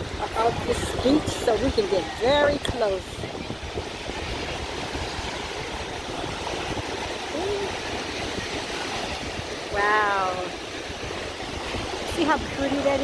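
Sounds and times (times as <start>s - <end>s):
surf hissing: 0.0s - 13.0s
wind buffeting microphone: 0.0s - 13.0s.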